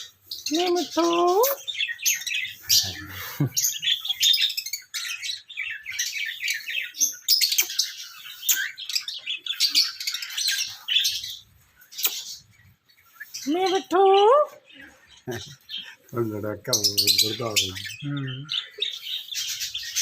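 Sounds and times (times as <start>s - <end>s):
parrot chirping: 0.0s - 20.0s.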